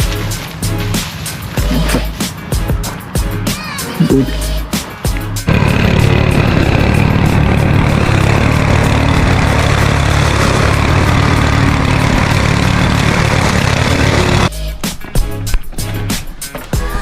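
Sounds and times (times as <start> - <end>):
lawnmower engine running: 5.5 - 14.5.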